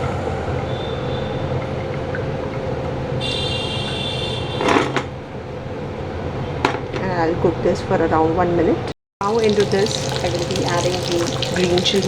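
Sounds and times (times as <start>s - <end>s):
garlic frying in oil: 9.2s - 12.0s.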